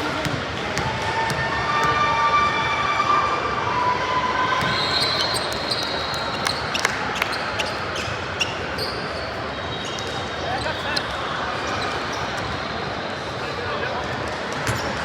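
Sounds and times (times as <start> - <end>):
gym crowd din: 0.0 - 15.0
shoes squeaking on gym floor: 4.6 - 12.7.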